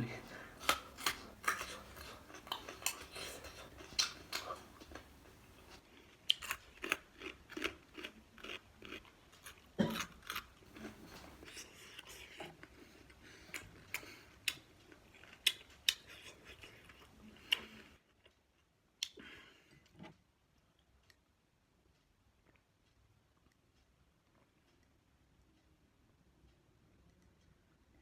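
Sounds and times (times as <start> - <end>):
crunchy chewing and biting: 0.2 - 18.7.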